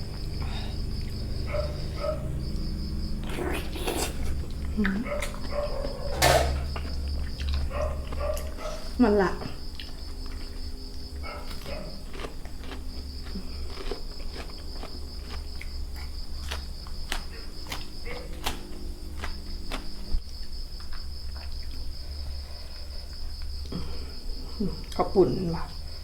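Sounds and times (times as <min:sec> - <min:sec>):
low hum: 0:00.0 - 0:11.7
chewing food crunches: 0:00.0 - 0:22.4
crickets chirring: 0:00.0 - 0:26.0.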